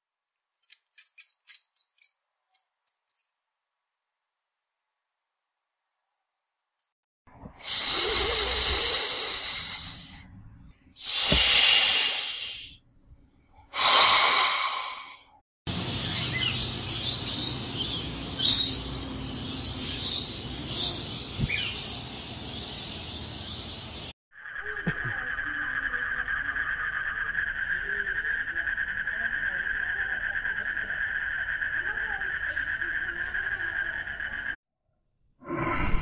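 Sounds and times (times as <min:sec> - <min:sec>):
noisy outdoor background: 0:00.0 - 0:34.6
snake hissing: 0:07.6 - 0:10.2, 0:11.0 - 0:12.8, 0:13.7 - 0:15.3.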